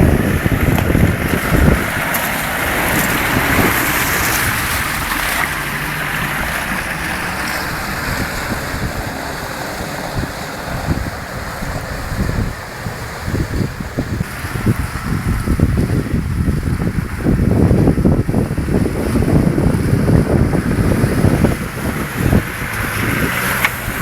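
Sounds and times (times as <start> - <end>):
low engine rumble: 0.0 - 24.0
vehicle splashing through mud: 0.0 - 24.0
wind buffeting microphone: 0.0 - 24.0.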